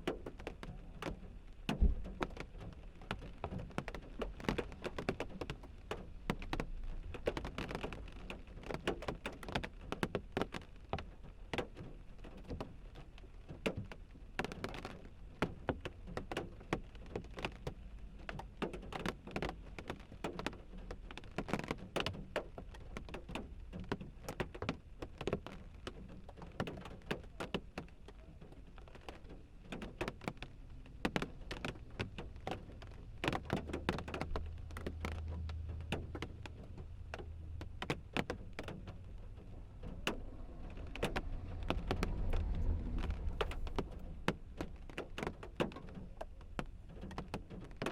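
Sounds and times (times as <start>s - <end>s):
raindrops tapping on glass: 0.0s - 47.9s
low rumble: 34.5s - 46.8s.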